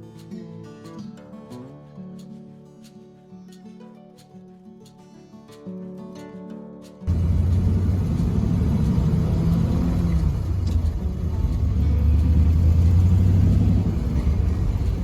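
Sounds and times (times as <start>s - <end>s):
car engine running low: 7.1s - 15.0s.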